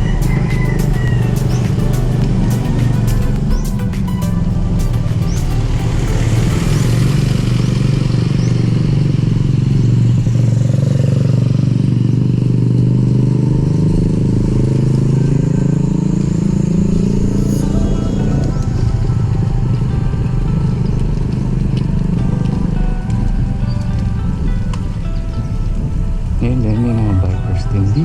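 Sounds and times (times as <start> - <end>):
motorcycle engine running: 0.0 - 26.5.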